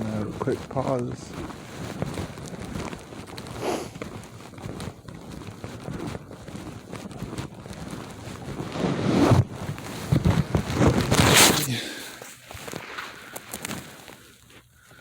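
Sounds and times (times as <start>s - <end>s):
footsteps crunching in snow: 7.8s - 14.7s
rustling burst: 8.5s - 14.2s.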